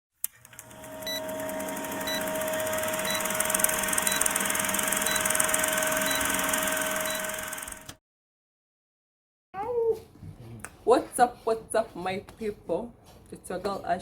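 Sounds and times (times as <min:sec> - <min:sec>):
steady electronic tone: 0:00.7 - 0:07.8.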